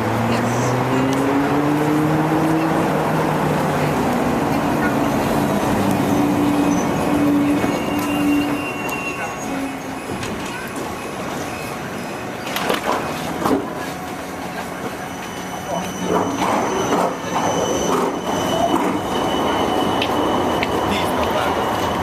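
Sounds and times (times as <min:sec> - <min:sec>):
street traffic: 0:00.0 - 0:22.0
tram motor hum: 0:00.0 - 0:22.0
tram wheels clacking: 0:00.8 - 0:22.0
high wheel squeals: 0:04.8 - 0:12.6, 0:14.5 - 0:22.0.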